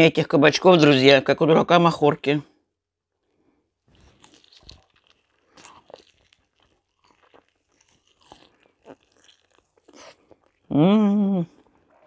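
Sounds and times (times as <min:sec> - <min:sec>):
person chewing food: 0:03.2 - 0:10.7, 0:11.5 - 0:12.0.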